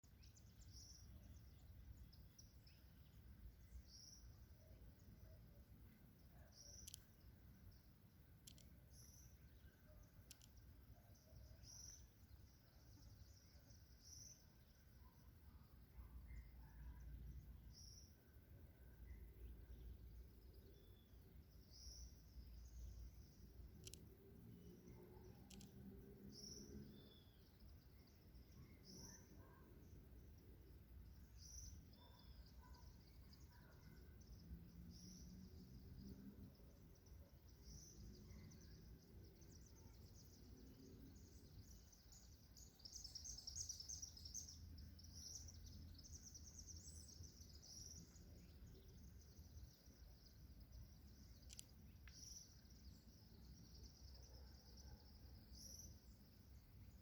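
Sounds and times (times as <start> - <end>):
faint bird chirps: 0.0 - 57.0.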